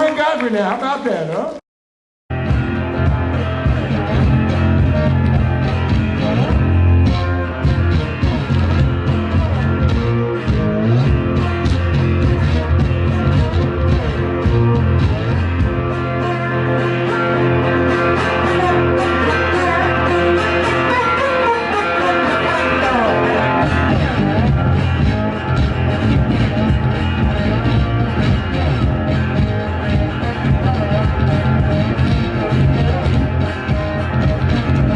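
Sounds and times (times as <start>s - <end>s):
drums on a steady beat: 2.3s - 15.9s, 23.6s - 34.9s
bass guitar: 2.3s - 34.9s
electric guitar: 2.3s - 34.9s.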